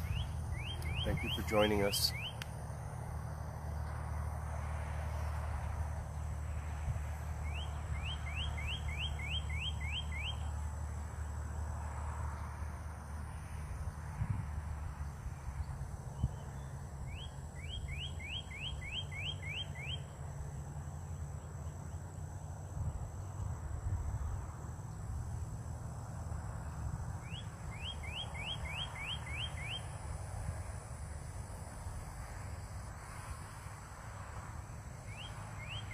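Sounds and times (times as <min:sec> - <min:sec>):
songbird whistling: 0:00.0 - 0:02.4, 0:07.4 - 0:10.5, 0:17.1 - 0:20.0, 0:27.2 - 0:29.9, 0:35.1 - 0:35.9.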